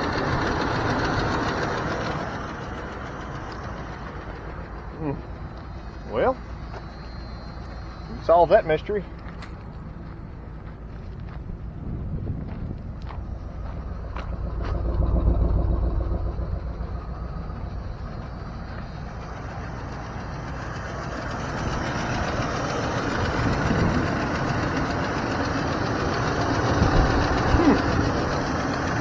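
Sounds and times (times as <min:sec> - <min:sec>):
pickup engine idling: 0:00.0 - 0:29.0.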